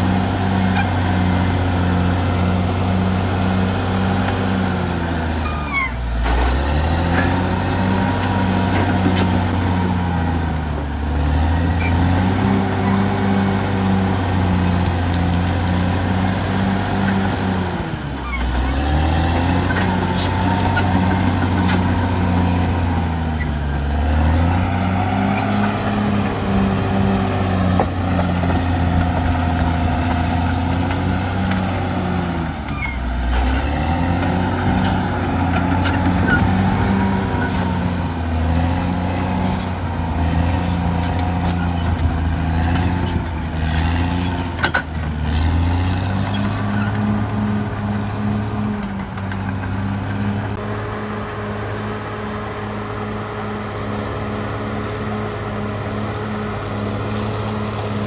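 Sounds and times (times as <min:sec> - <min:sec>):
bulldozer diesel engine: 0:00.0 - 0:58.0.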